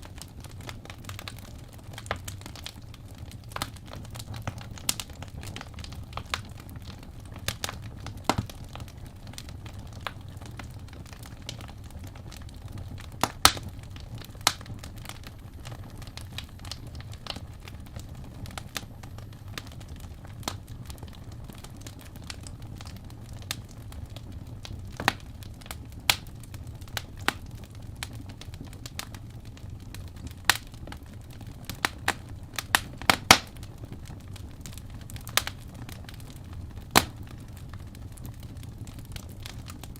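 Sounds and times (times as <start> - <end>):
burning logs crackling and popping: 0.0 - 39.9
low rumble of flames: 0.0 - 39.9.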